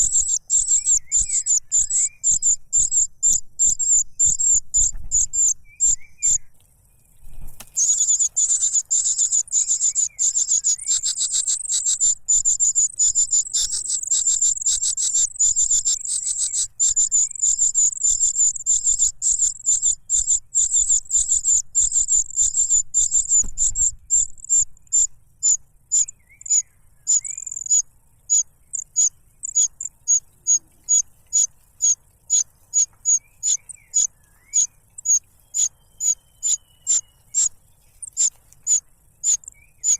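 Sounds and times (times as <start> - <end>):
chick chirping: 7.6 - 24.7, 25.5 - 39.9.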